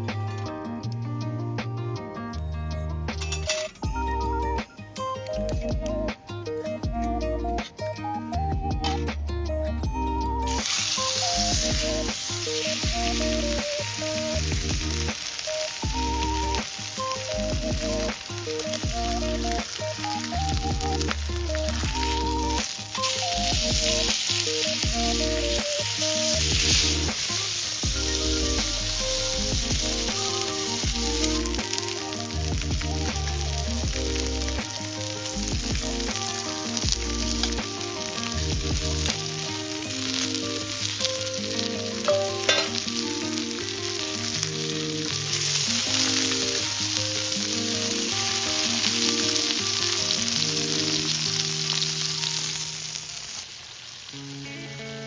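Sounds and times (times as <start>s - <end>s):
background music with bass line: 0.0s - 40.5s
steak sizzling: 10.0s - 55.0s.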